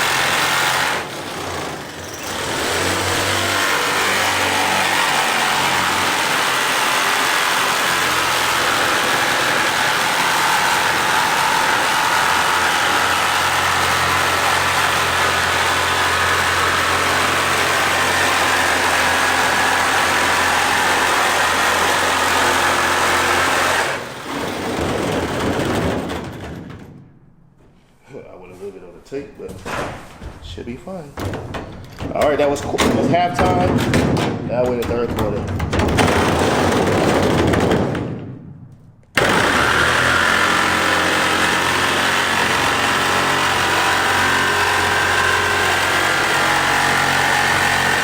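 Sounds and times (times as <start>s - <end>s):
power tool cutting sheet metal: 0.0s - 26.3s, 35.9s - 37.6s, 39.2s - 48.0s.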